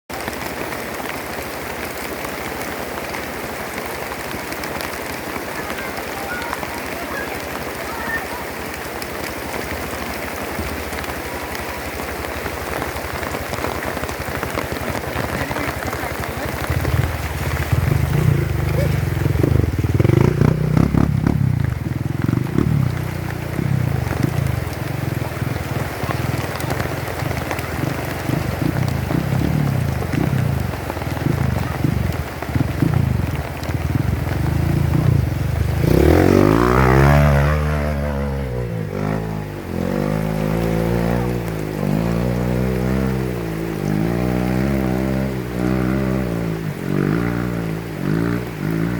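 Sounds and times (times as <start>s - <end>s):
steady rain falling: 0.1s - 48.9s
motorcycle engine revving: 5.2s - 48.9s.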